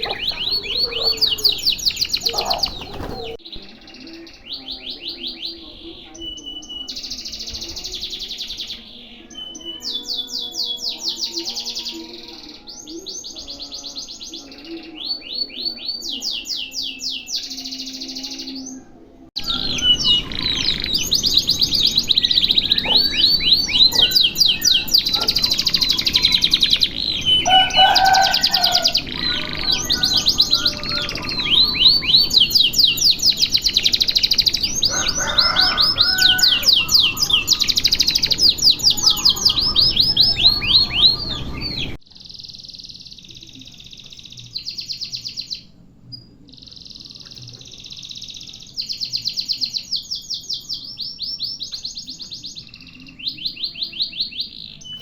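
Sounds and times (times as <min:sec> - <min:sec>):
canary trilling: 0:00.0 - 0:03.5, 0:04.1 - 0:43.3
background noise: 0:00.0 - 0:55.0.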